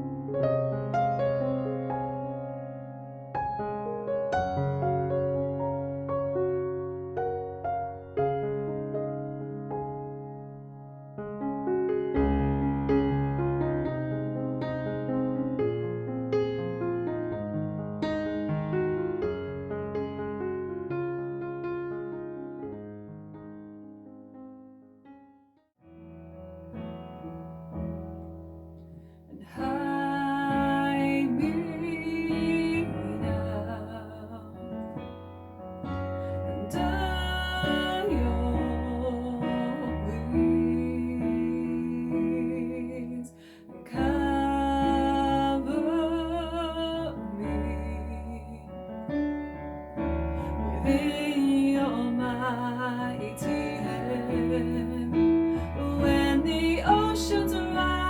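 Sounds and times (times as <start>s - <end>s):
soft piano notes: 0.0s - 24.8s, 25.9s - 58.0s
person singing a hymn: 29.4s - 34.6s, 36.2s - 48.7s, 50.4s - 58.0s.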